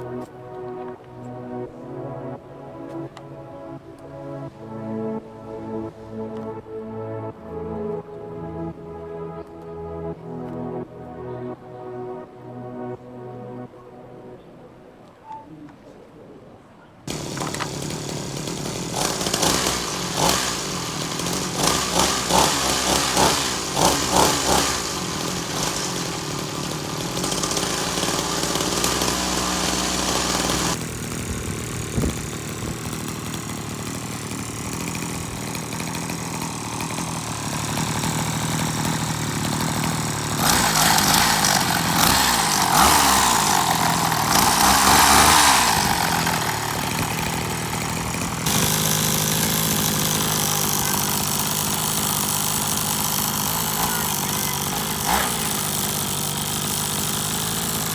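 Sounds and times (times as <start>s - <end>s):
grass trimmer engine revving: 17.1s - 57.9s.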